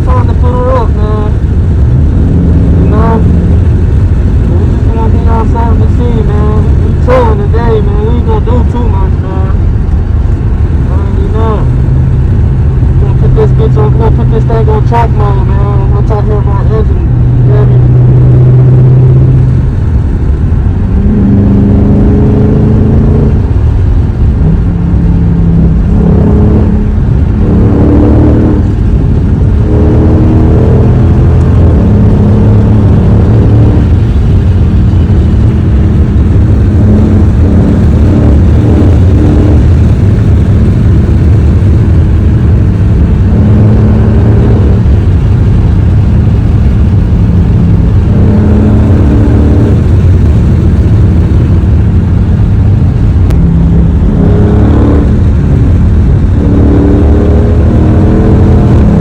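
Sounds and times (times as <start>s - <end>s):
car engines idling and revving: 0.0s - 59.0s.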